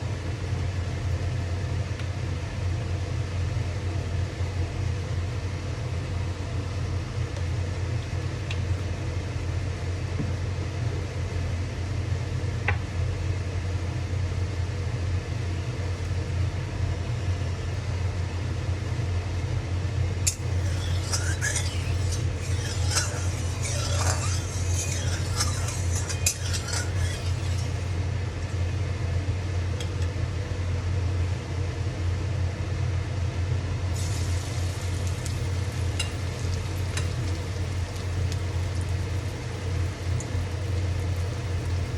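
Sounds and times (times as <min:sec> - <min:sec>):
steady low hum: 0:00.0 - 0:41.9
utensils clinking against a bowl: 0:20.3 - 0:27.9.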